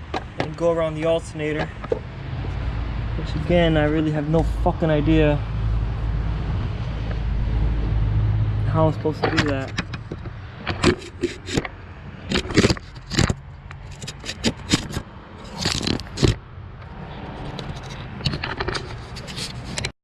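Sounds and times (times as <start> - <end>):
tools scraping on engine parts: 0.0 - 4.6, 8.7 - 19.9.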